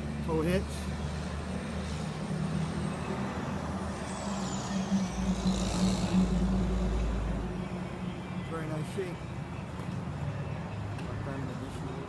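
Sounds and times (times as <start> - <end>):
deep rumble: 3.7 - 7.9.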